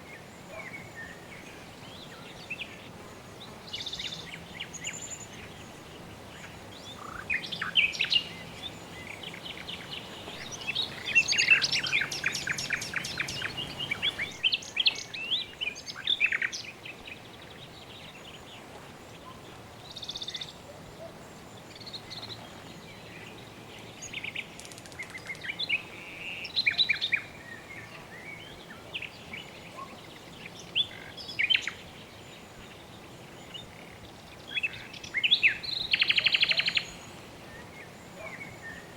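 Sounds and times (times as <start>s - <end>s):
background hiss: 0.0s - 38.9s
birds chirping and calling: 7.0s - 15.4s.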